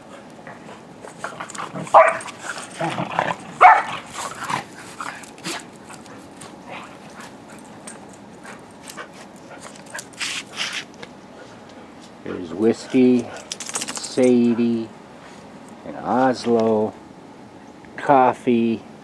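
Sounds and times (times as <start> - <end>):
dogs barking: 0.0 - 10.1
rustling and clicking: 0.0 - 11.2, 12.9 - 14.7.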